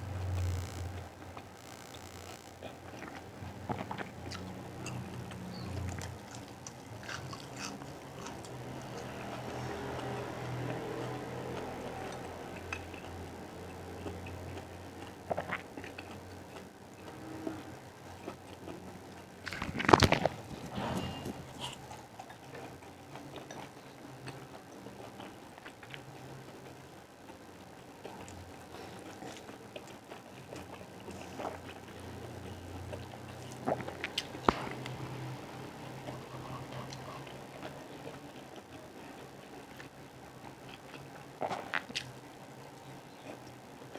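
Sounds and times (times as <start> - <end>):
steady low hum: 0.0 - 9.8
low steady hum: 0.0 - 23.1
chewing: 2.7 - 42.4
chewing and mouth smacks: 3.0 - 11.1, 14.0 - 17.2, 36.0 - 38.8.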